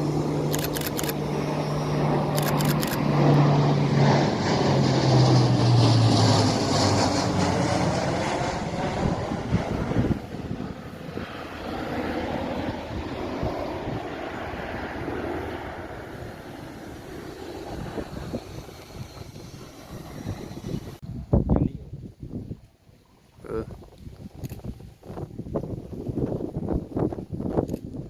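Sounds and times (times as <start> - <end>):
propeller aircraft flying past: 0.0 - 21.4.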